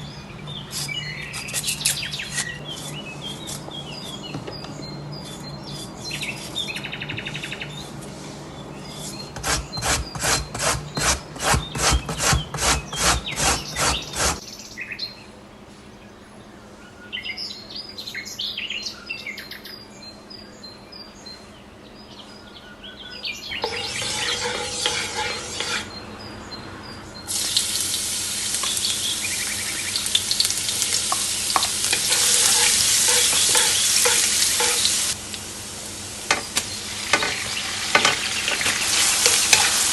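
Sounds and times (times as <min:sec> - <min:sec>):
faint bird chirps: 0:12.9 - 0:35.1
even strokes: 0:23.6 - 0:25.9
food sizzling in a pan: 0:23.6 - 0:25.9, 0:27.3 - 0:39.9.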